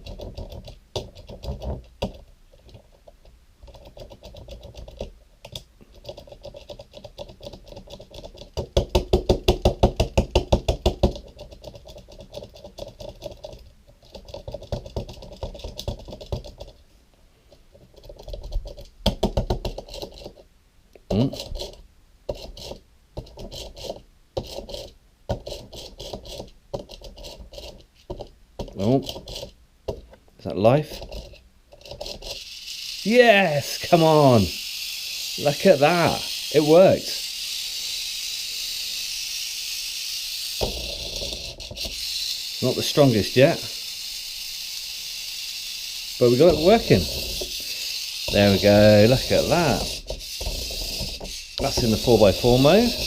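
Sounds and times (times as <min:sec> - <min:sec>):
plastic toy clicks and rattles: 0:00.0 - 0:16.8, 0:17.8 - 0:20.4, 0:30.9 - 0:53.0.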